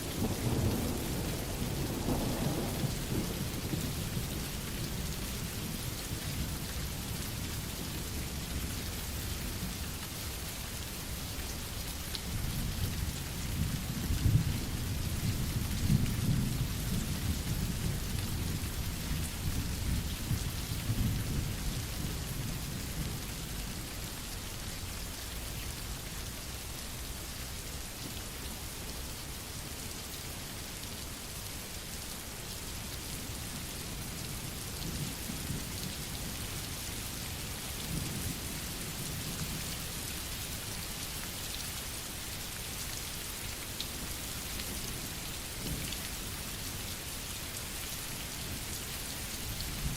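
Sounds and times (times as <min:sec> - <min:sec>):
steady rain: 0:00.0 - 0:49.9
low rolling thunder: 0:00.1 - 0:05.1.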